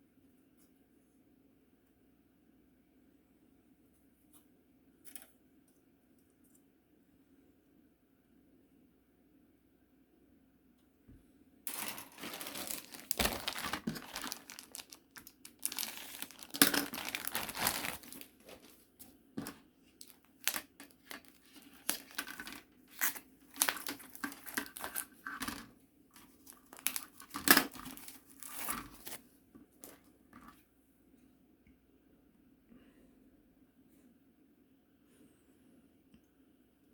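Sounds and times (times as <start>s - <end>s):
packaging crinkling and rustling: 11.7s - 30.5s.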